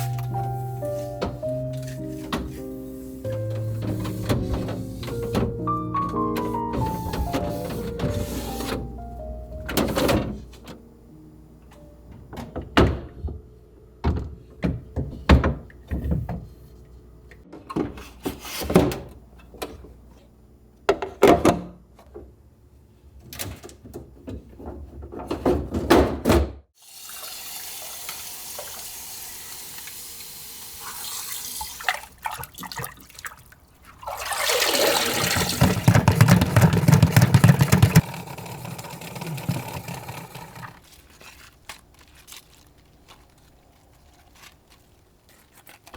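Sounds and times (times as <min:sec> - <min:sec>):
items being handled: 0:00.0 - 0:09.0, 0:35.2 - 0:38.2, 0:38.9 - 0:45.9
kitchen tap running into sink: 0:26.8 - 0:40.8.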